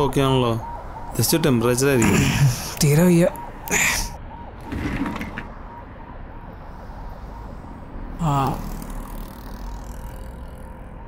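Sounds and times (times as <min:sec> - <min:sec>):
man groaning: 0:08.2 - 0:08.8.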